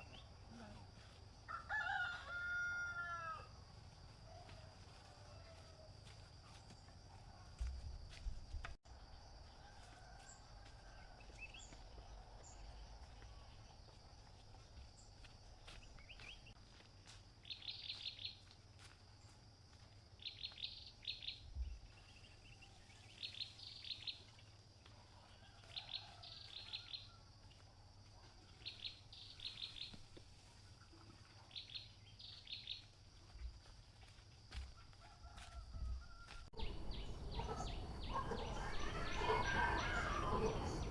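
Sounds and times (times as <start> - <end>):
bird chirping: 36.5 - 40.9.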